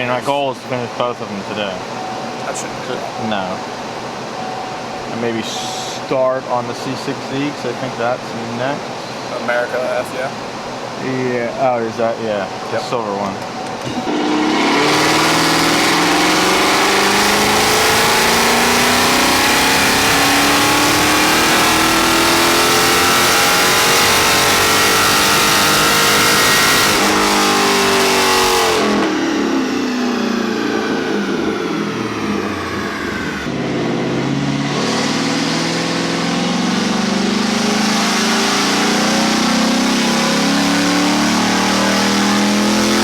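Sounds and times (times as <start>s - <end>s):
loud car engine exhaust revving: 13.9s - 43.0s.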